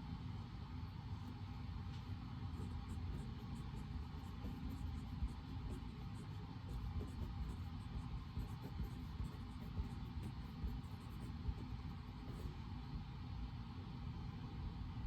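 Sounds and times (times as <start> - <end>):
low room rumble: 0.0 - 15.0.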